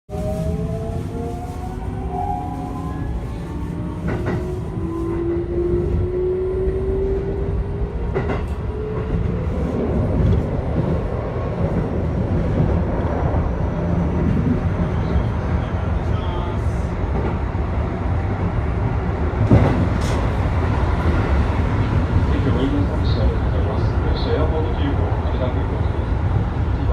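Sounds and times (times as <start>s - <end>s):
train running rumble: 0.1s - 26.9s.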